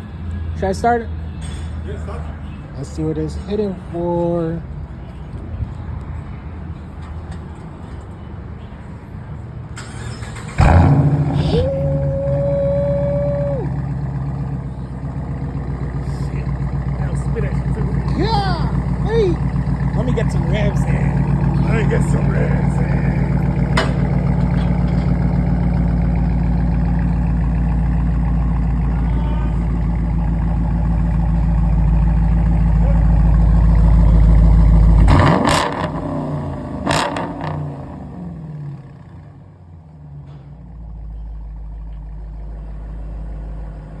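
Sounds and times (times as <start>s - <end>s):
engine rumbling and revving: 9.8s - 44.0s.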